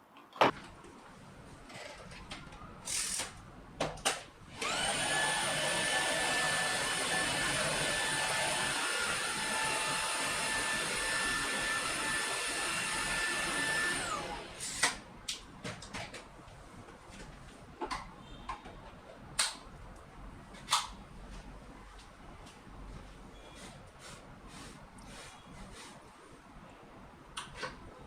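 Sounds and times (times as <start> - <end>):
vacuum cleaner whine: 4.5 - 15.0.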